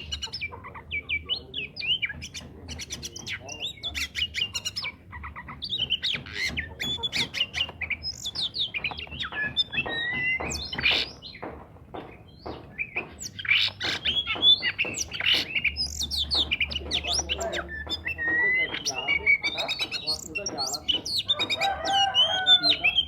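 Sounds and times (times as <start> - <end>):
bird singing whistled notes: 12.3 - 23.0.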